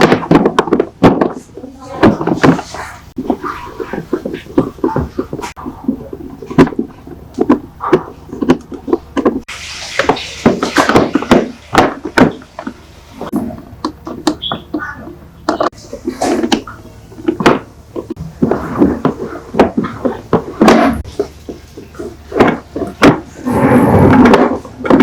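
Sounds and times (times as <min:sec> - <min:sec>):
sharp knocks and thuds: 0:00.0 - 0:25.0
people talking: 0:01.3 - 0:06.0.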